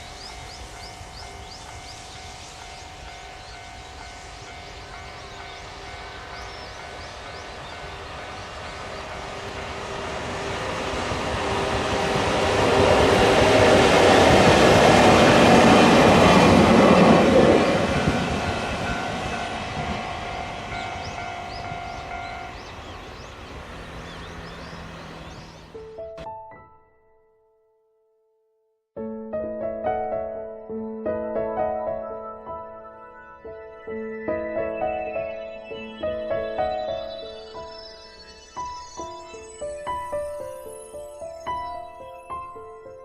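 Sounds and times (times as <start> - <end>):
freight train passing: 0.0 - 26.3, 33.5 - 43.0
locomotive humming tones: 0.0 - 26.3.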